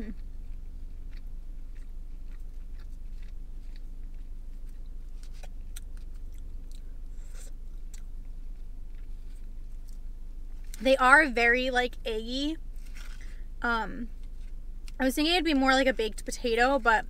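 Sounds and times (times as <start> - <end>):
low car cabin hum: 0.0 - 17.0
chewing: 0.1 - 10.0.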